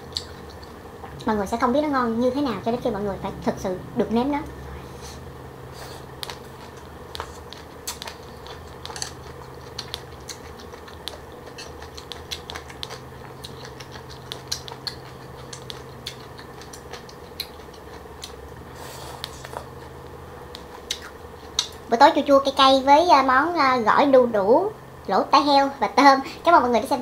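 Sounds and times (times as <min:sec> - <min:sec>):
crunchy chewing: 0:00.0 - 0:01.2, 0:05.7 - 0:21.9
low hum: 0:00.0 - 0:21.9.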